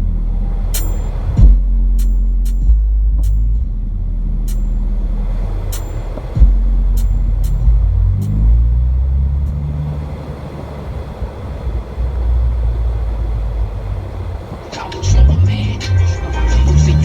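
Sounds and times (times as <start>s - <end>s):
car engine revving: 0.0s - 17.0s
short sharp ticks: 0.7s - 1.2s, 2.0s - 3.5s, 4.5s - 4.8s, 5.7s - 8.4s.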